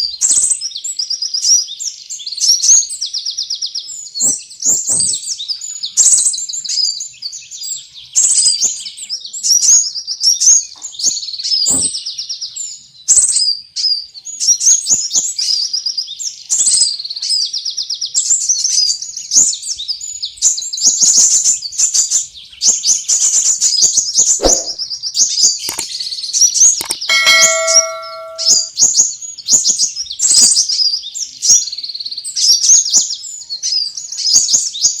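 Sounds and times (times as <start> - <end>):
birds chirping and twittering: 18.5 - 28.7
brief steady tone: 26.8 - 28.7.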